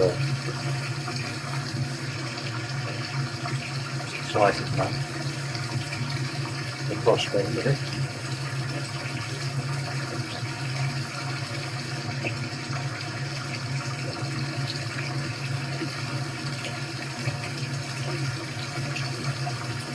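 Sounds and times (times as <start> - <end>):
running water: 0.0 - 19.9.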